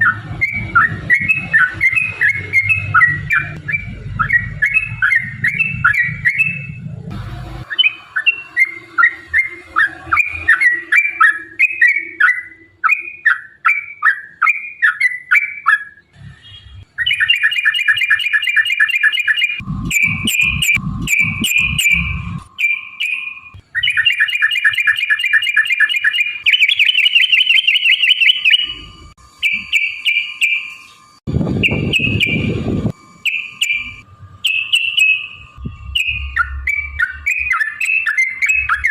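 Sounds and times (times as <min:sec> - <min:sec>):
bird chirps and rolling trills: 0:00.0 - 0:07.0, 0:17.0 - 0:38.9
low rumbling bumps: 0:19.6 - 0:22.5.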